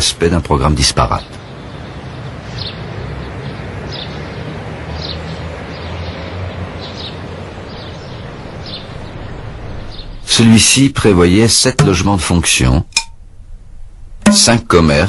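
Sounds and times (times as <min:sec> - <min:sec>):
small bird chirping: 0:01.2 - 0:10.4
low hum: 0:12.9 - 0:14.9.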